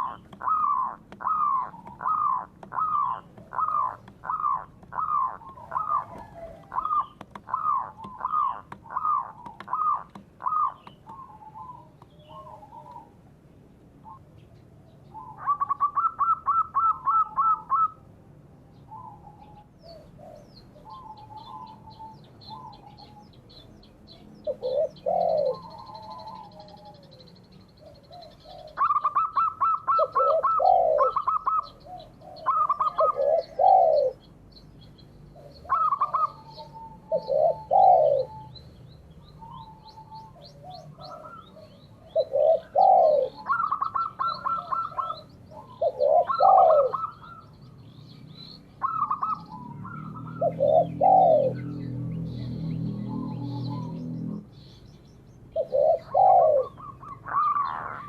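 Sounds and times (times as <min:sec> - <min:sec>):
dove staccato calls: 0:00.0 - 0:13.2, 0:14.9 - 0:18.0, 0:18.9 - 0:58.0
dove swooping coos: 0:00.0 - 0:13.2, 0:15.1 - 0:18.0, 0:18.9 - 0:23.4, 0:24.4 - 0:34.3, 0:35.4 - 0:47.6, 0:48.8 - 0:54.7, 0:55.6 - 0:58.0.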